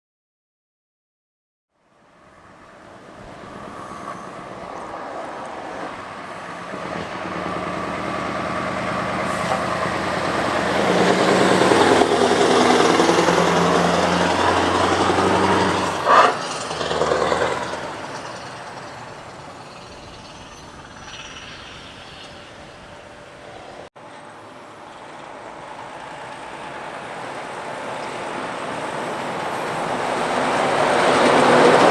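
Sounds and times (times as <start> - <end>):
truck diesel engine passing: 2.0 - 31.9
air brake hiss: 3.6 - 4.5, 9.1 - 10.2.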